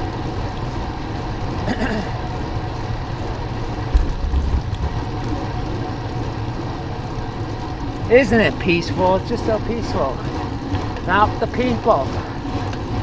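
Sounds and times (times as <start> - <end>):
bicycle road noise: 0.0 - 13.0
low rumble: 3.2 - 6.2.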